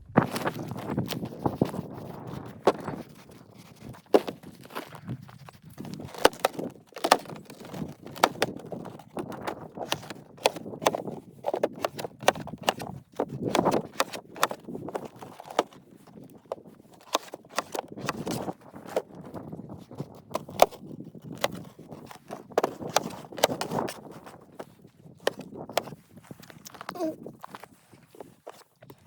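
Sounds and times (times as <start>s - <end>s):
crunching bursts: 0.1s - 19.3s
sharp clicks and knocks: 21.4s - 24.4s.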